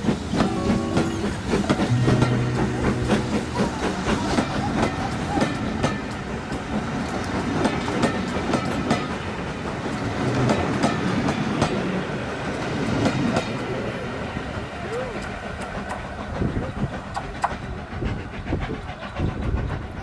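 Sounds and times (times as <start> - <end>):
train wheels clattering over rail joints: 0.0 - 13.8.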